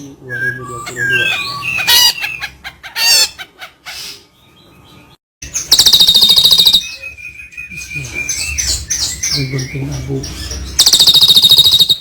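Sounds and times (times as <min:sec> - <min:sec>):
songbirds chirping: 0:00.0 - 0:12.0
bird rapid trill: 0:05.5 - 0:12.0.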